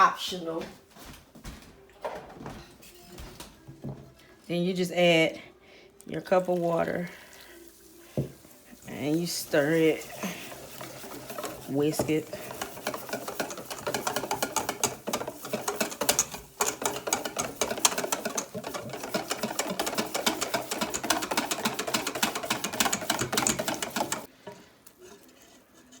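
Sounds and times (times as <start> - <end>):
whisk clicking against bowl: 8.2 - 24.6.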